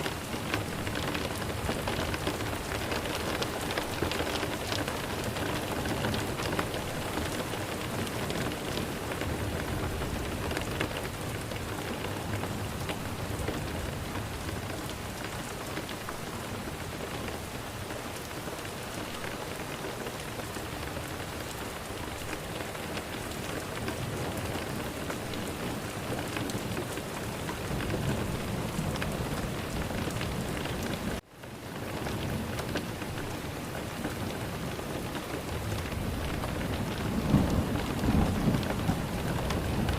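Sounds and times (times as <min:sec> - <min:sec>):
heavy rain pattering: 0:00.0 - 0:39.9
thunder rumbles: 0:22.9 - 0:31.2, 0:35.4 - 0:39.9.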